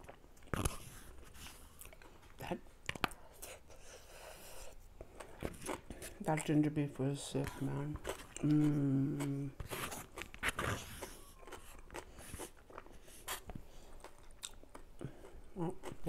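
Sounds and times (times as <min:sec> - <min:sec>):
chewing and crunching food: 0:00.0 - 0:16.0
person humming: 0:08.4 - 0:09.7.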